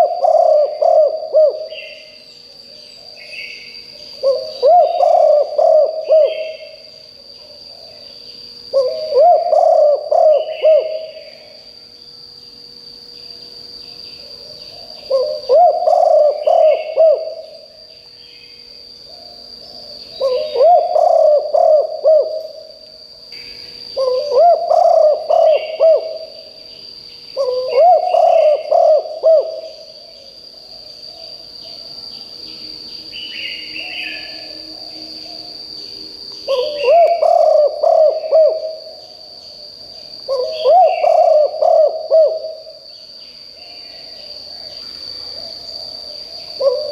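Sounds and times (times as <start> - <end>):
dove cooing: 0.0 - 2.2, 4.1 - 8.0, 8.7 - 11.5, 14.2 - 17.7, 19.1 - 22.7, 24.0 - 26.4, 27.4 - 29.9, 36.5 - 39.2, 40.3 - 42.8, 46.6 - 46.9
faint bird chirps: 0.0 - 12.0
high insect whine: 0.0 - 46.9.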